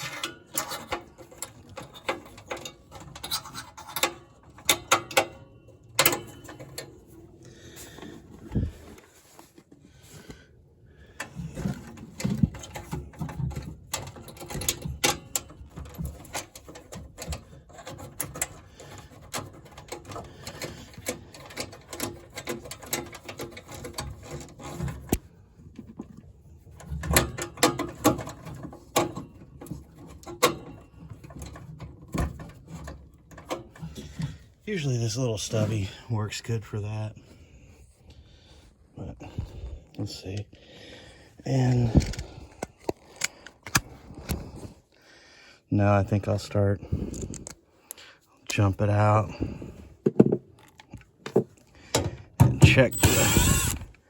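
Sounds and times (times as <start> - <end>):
metal parts clicking and scraping: 0.0 - 9.6, 11.1 - 35.8, 41.4 - 44.7, 50.5 - 54.0.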